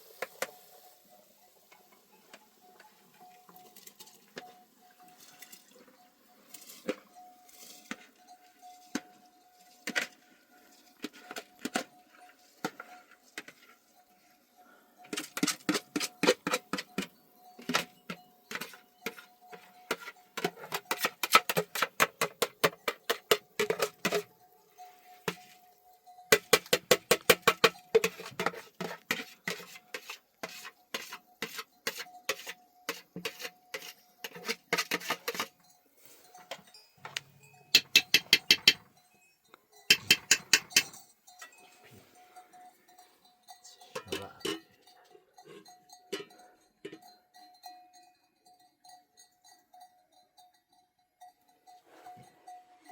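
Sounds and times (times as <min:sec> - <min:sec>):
faint steady ringing tone: 0:00.1 - 0:52.9
metallic clinking and clanking: 0:36.2 - 0:41.9, 0:43.6 - 0:47.1.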